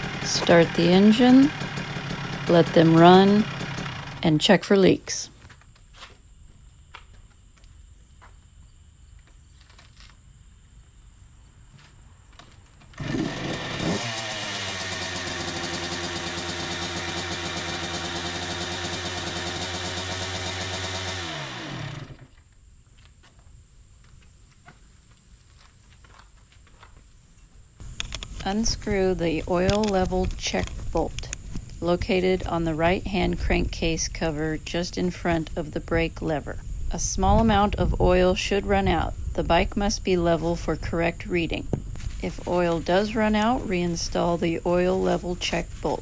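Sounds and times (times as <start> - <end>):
dirt bike engine starting and idling: 0.0 - 5.5, 12.7 - 22.5, 27.8 - 46.0.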